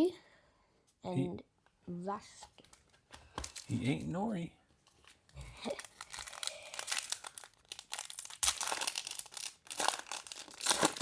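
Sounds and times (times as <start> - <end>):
card pack wrapper crinkling: 3.4 - 4.1, 5.0 - 11.0.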